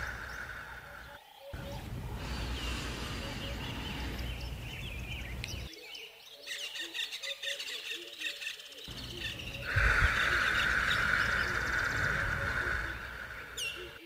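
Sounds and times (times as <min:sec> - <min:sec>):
steady hiss: 0:00.0 - 0:05.7, 0:08.9 - 0:14.0
birds chirping and calling: 0:00.0 - 0:14.0.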